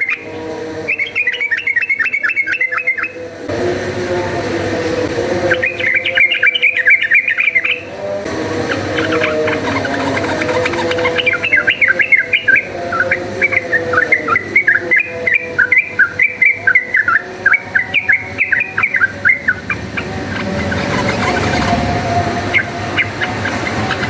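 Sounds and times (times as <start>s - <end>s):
bird singing chirped notes: 0.0s - 3.4s, 5.4s - 24.0s
steady low hum: 16.0s - 24.0s.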